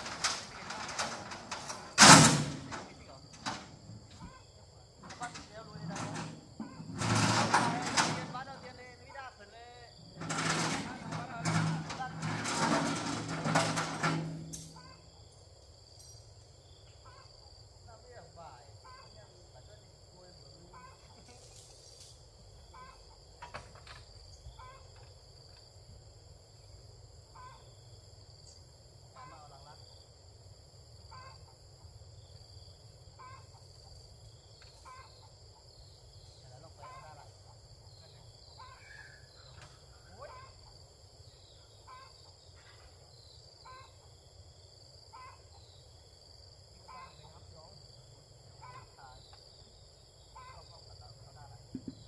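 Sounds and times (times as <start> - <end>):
high insect drone: 0.0 - 52.0
bird calling: 36.4 - 40.8.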